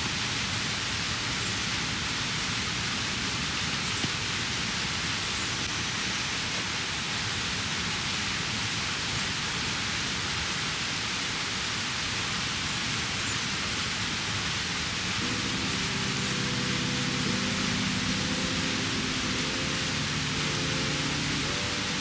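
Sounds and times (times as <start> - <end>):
mountain stream rushing: 13.7 - 22.0
low multi-tone hum: 15.2 - 22.0.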